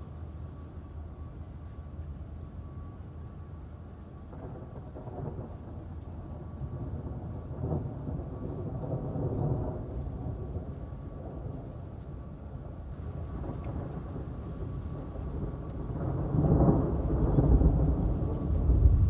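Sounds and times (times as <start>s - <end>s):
steady rain: 0.0s - 19.0s
rolling thunder: 4.2s - 12.0s, 12.6s - 19.0s.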